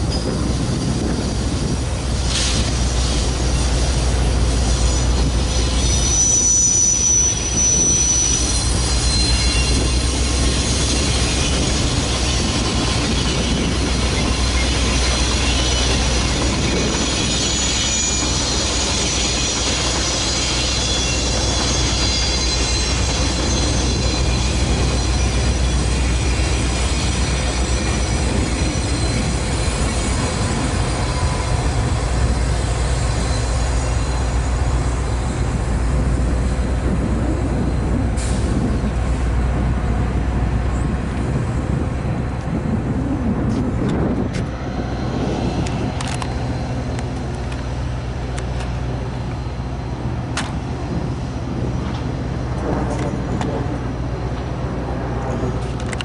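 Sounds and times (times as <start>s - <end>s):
train rumbling: 0.0s - 56.0s
high squealing tones: 3.3s - 36.8s.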